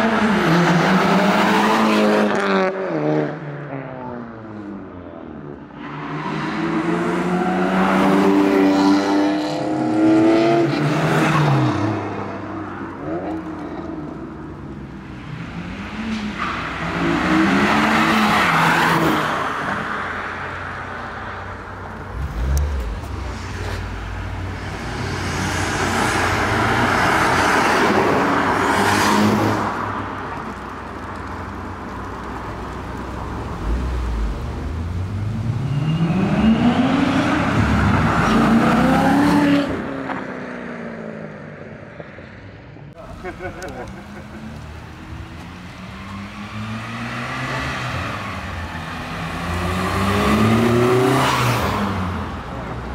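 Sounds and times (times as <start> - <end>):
cars accelerating past: 15.1 - 41.6, 43.1 - 52.9.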